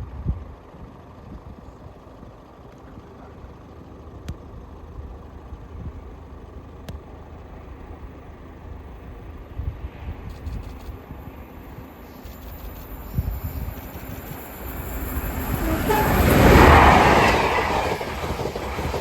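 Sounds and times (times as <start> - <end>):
train rumbling past: 0.5 - 19.0
sharp clicks: 10.2 - 11.0.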